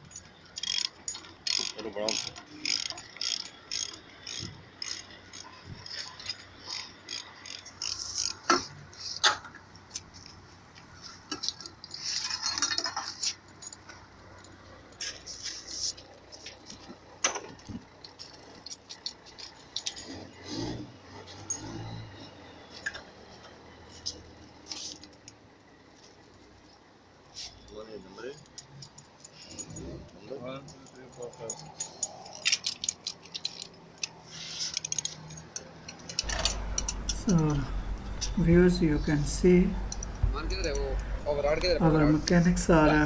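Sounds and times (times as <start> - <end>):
ratchet wrench clicking: 0.5 - 8.6.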